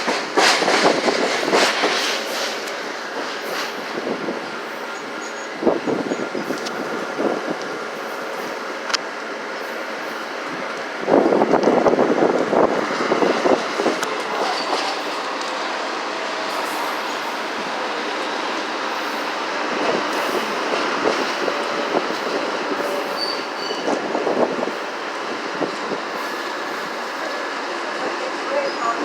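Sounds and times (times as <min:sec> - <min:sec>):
wheels clattering over rail joints: 0:00.0 - 0:07.7, 0:10.0 - 0:29.0
train rolling past: 0:00.0 - 0:29.0
high wheel squeal: 0:04.9 - 0:06.4, 0:14.3 - 0:15.1, 0:22.8 - 0:24.0.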